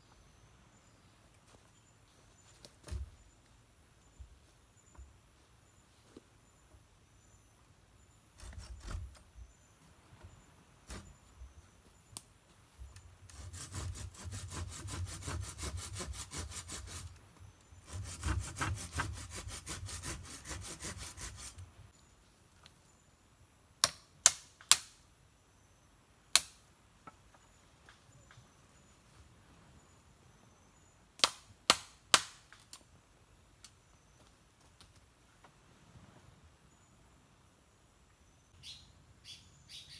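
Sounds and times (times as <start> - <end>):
hand saw cutting wood: 13.3 - 17.2, 17.8 - 21.7.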